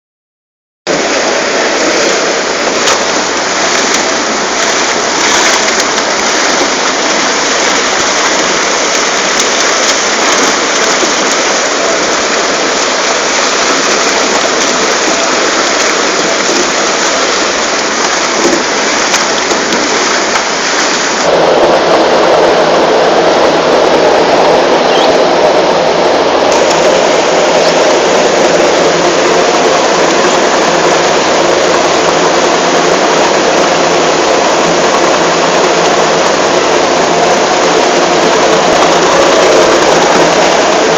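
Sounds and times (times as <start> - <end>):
root washer spraying and tumbling: 1.3 - 21.3.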